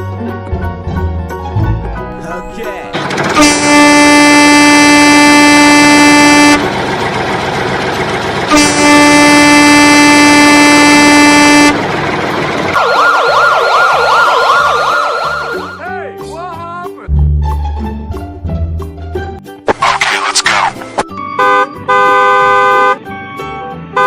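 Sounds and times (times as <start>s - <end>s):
truck horn blasts: 3.2s - 6.8s, 8.4s - 11.8s, 21.4s - 23.1s
siren warbling: 12.7s - 15.8s.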